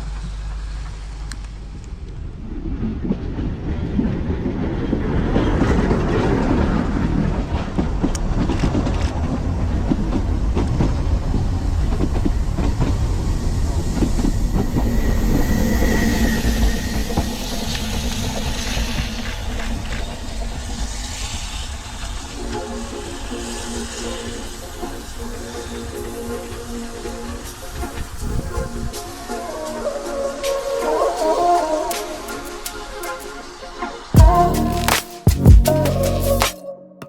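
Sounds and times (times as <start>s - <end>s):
train rumbling: 0.0s - 30.0s
high-pitched tone: 27.7s - 37.0s.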